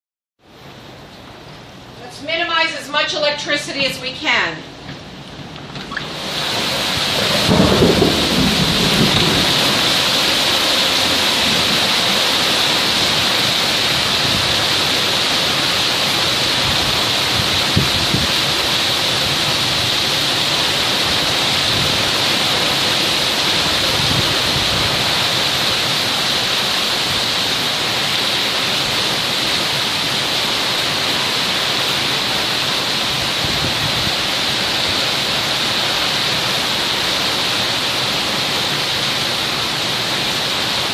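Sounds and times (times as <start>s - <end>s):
heavy rain hissing: 5.8s - 40.9s
thunder rumbling: 6.1s - 26.3s.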